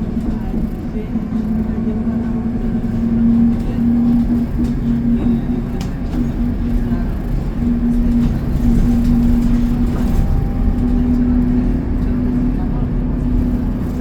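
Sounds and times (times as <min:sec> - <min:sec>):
bus engine and road rumble: 0:00.0 - 0:14.0
droning hum: 0:00.0 - 0:14.0.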